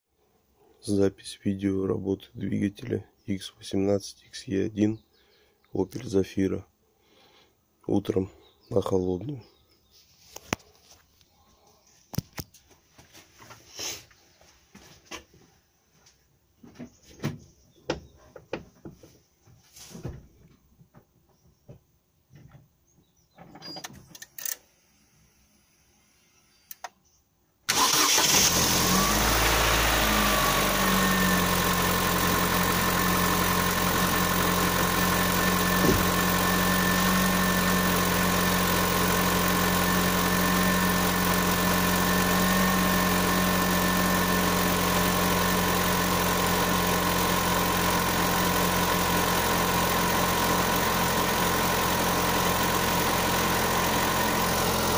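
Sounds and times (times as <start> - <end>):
petrol engine starting and idling: 27.7 - 54.9.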